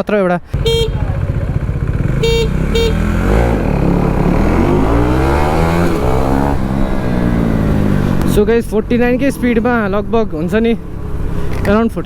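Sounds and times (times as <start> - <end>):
wind: 0.0 - 12.0
traffic noise: 0.5 - 12.0
short horn toots: 0.6 - 1.4, 2.1 - 3.6
motorcycle engine accelerating: 0.6 - 12.0.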